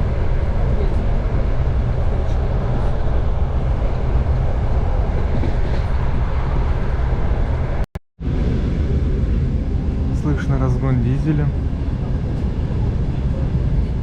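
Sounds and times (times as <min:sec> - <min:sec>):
train carriage rumbling on rails: 0:00.0 - 0:14.0.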